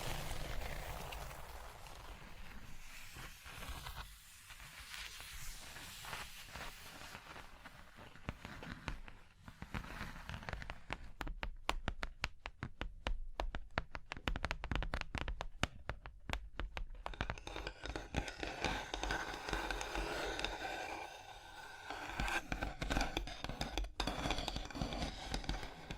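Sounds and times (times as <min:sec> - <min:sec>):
fingers tapping on object: 0:10.6 - 0:25.9
scratching: 0:16.7 - 0:25.9.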